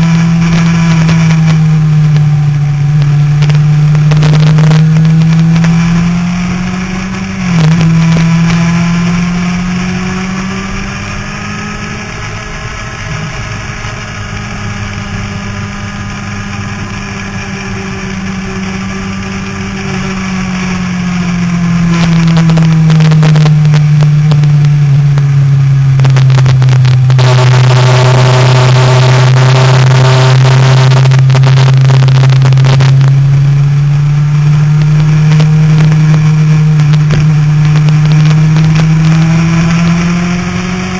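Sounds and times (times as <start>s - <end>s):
motorcycle engine revving: 0.0s - 40.9s
wind rush on microphone: 9.6s - 40.9s.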